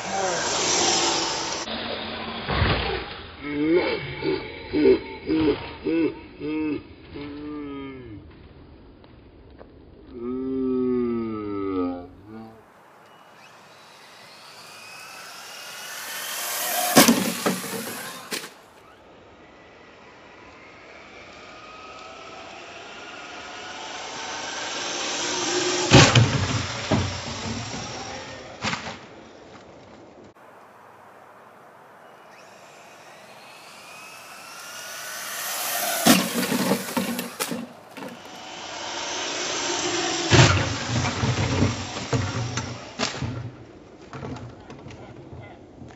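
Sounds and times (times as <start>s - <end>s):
electric motor whining: 0.0s - 2.5s, 13.0s - 28.6s, 32.1s - 43.3s
toy truck landing knocks: 15.8s - 18.6s, 34.9s - 38.3s.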